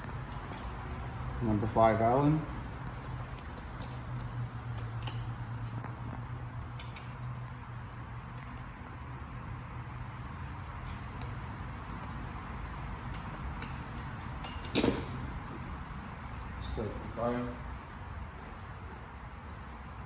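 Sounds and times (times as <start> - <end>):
low buzzing hum: 0.0 - 20.0.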